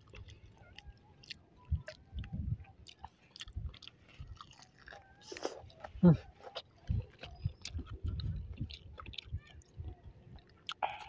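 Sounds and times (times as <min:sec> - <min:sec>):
person chewing crispy food: 0:00.0 - 0:11.0
mouth clicks: 0:10.3 - 0:11.0.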